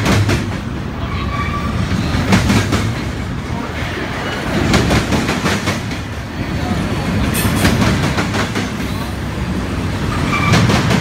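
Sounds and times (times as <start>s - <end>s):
freight train rumbling past: 0.0s - 11.0s.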